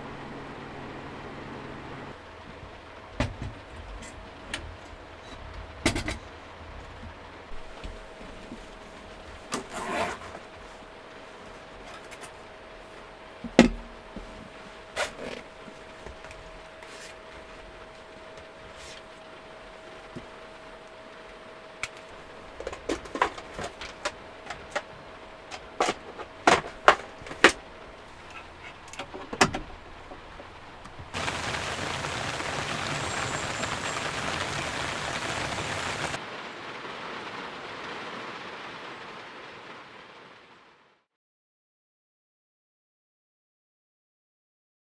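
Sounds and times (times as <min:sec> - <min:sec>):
rain on a van: 0:00.0 - 0:41.0
loud rushing hiss: 0:31.2 - 0:36.2.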